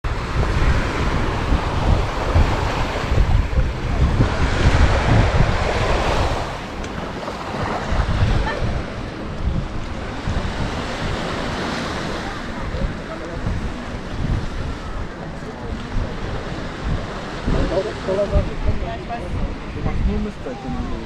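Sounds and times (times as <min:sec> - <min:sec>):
sea waves washing onto beach: 0:00.0 - 0:21.0
wind buffeting microphone: 0:00.0 - 0:21.0.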